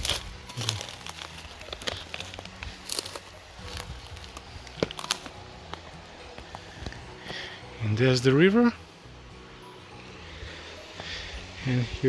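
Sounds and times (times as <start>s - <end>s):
footsteps crunching on dry ground: 0.0s - 8.7s.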